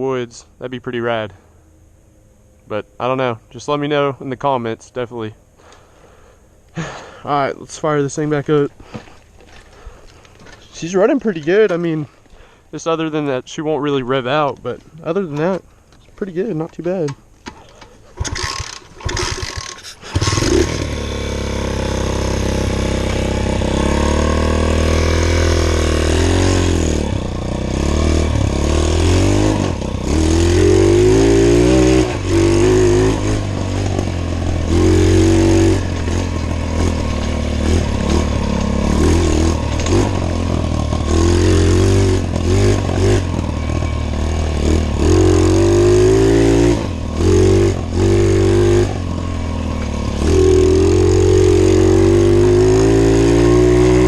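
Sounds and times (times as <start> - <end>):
pit bike engine revving: 18.1 - 54.0.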